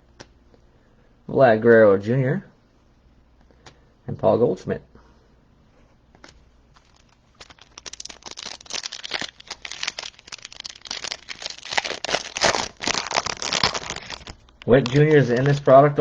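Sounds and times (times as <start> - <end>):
foil wrapper crinkling: 6.7 - 15.9.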